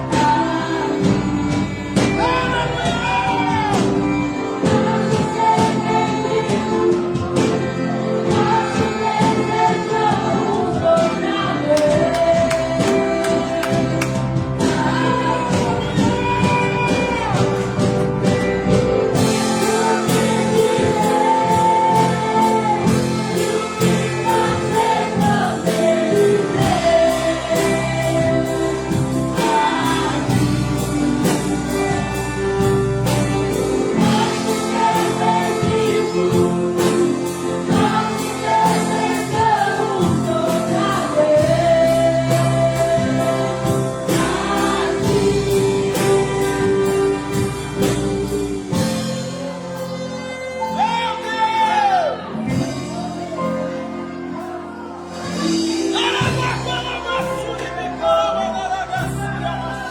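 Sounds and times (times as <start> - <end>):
orchestra playing worship song: 0.0 - 59.9
voices singing melody: 0.0 - 59.9
steady beat: 11.7 - 48.9.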